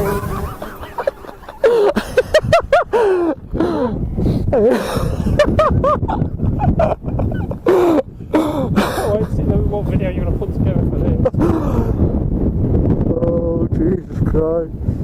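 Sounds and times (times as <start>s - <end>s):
men gasping and laughing: 0.0s - 9.2s, 11.4s - 12.2s
wind buffeting microphone: 0.0s - 15.0s.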